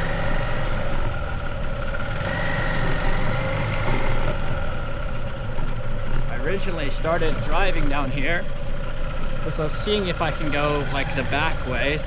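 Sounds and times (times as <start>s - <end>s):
motorbike engine running: 0.0s - 12.0s.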